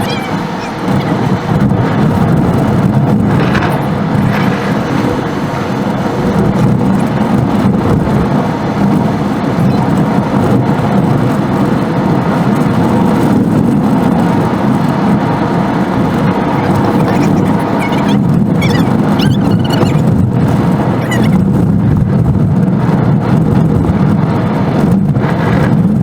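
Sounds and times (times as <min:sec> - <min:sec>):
car driving noise: 0:00.0 - 0:26.0.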